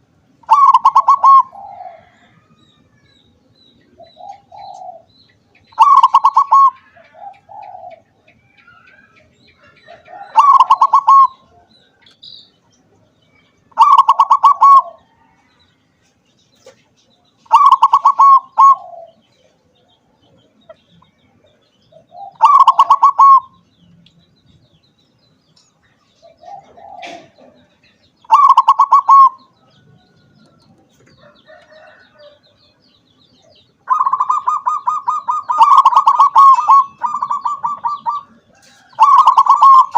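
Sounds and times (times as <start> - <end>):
dove cooing: 0.0 - 2.6, 3.9 - 5.1, 5.7 - 11.7, 13.7 - 15.4, 17.4 - 19.6, 21.9 - 23.6, 26.2 - 30.2, 33.8 - 39.9
steady pulsing bird call: 0.0 - 39.9.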